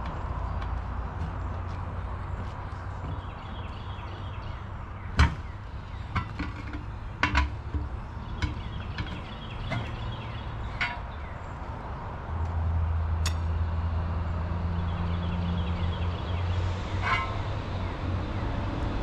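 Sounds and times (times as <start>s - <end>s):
sharp knocks and clatters: 5.2s - 11.2s.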